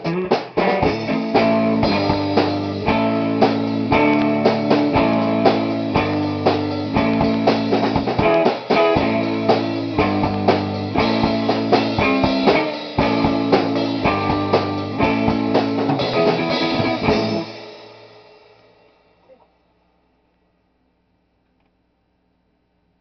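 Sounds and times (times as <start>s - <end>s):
rock band playing: 0.0s - 18.6s
guitar chord ringing: 0.8s - 17.6s.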